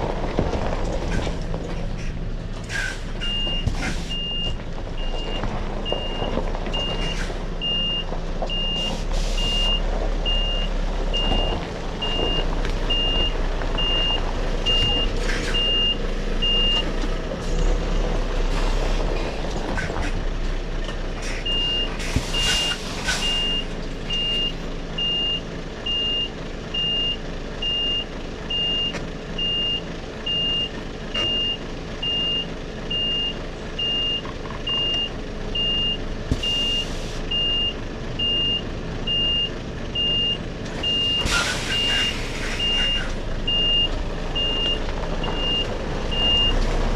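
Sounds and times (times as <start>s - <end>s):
diesel engine running: 0.0s - 46.9s
reversing alarm beeping: 3.2s - 16.8s, 21.5s - 46.6s.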